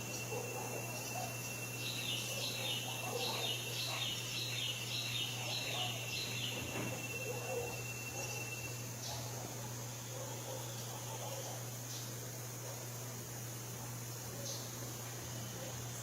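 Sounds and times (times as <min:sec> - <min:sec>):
steady background hum: 0:00.0 - 0:16.0
bird chirping: 0:00.1 - 0:09.3.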